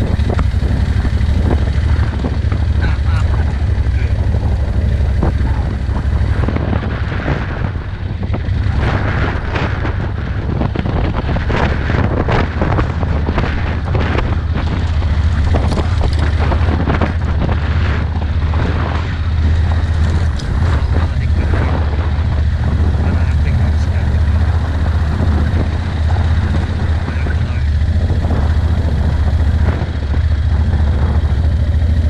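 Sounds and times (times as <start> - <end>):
vehicle driving on rough road: 0.0 - 32.0
wind buffeting microphone: 0.0 - 32.0
knocks and rattles: 8.4 - 32.0.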